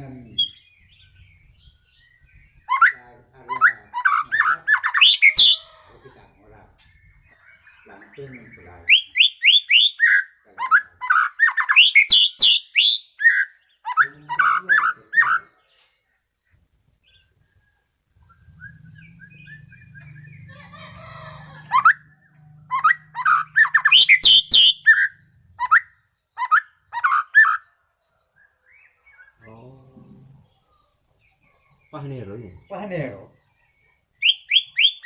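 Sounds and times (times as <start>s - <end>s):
bird singing whistled phrases: 0.3s - 5.7s, 8.4s - 15.6s, 18.2s - 20.5s, 21.5s - 27.7s, 34.2s - 35.0s
faint low hum: 14.1s - 23.9s, 29.4s - 34.0s.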